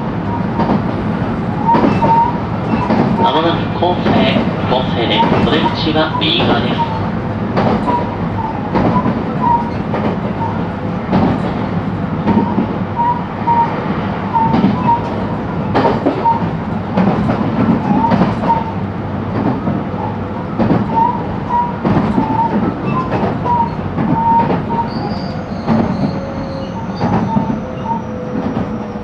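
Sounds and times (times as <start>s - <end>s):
train rolling rumble: 0.0s - 29.0s
rail-joint clacks: 0.1s - 29.0s
short high squeaks: 21.0s - 28.4s.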